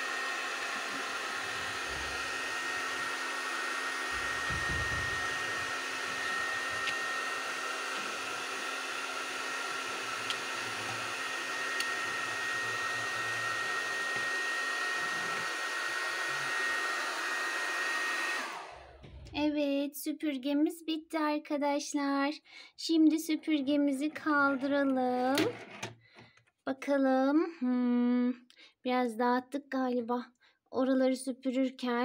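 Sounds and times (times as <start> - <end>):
toy vacuum cleaner whirring: 0.0 - 19.3, 23.3 - 26.0.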